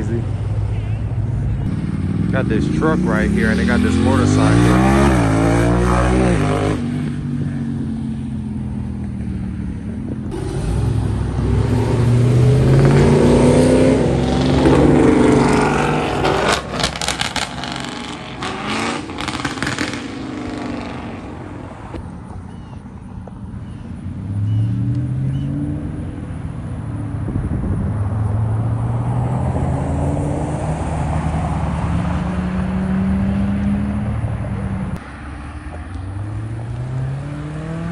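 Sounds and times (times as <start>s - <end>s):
vehicle engines driving by: 0.0s - 37.9s.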